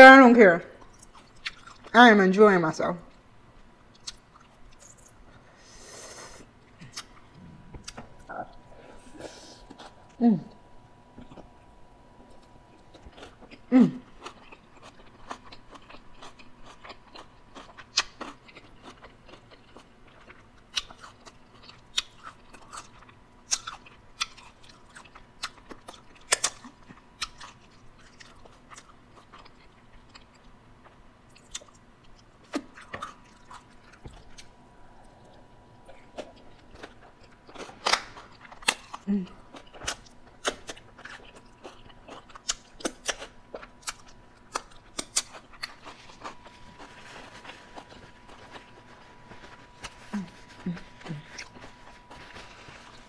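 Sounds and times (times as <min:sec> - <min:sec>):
person chewing crunchy food: 0:00.8 - 0:01.9, 0:03.9 - 0:10.2, 0:11.1 - 0:53.0
person humming briefly: 0:50.0 - 0:51.4.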